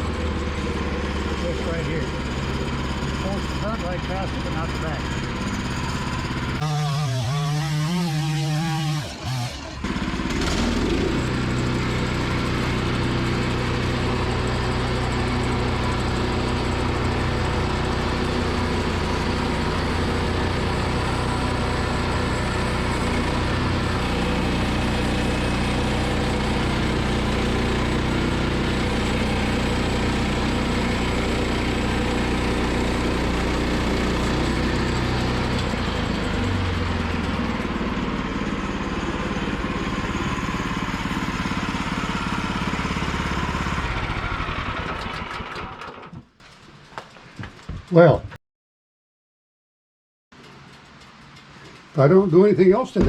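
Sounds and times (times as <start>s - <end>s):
gas engine running: 0.0s - 47.0s
band blade cutting log: 6.6s - 11.8s.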